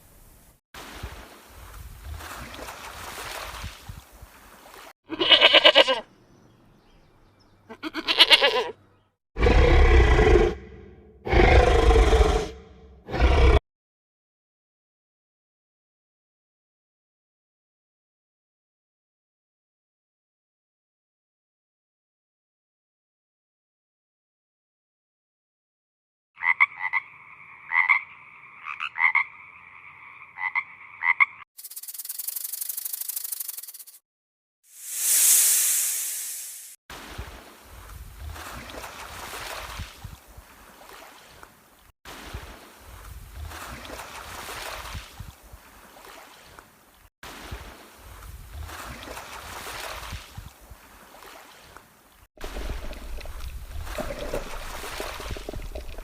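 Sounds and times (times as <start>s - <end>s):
quavering animal calls: 26.4s - 31.4s.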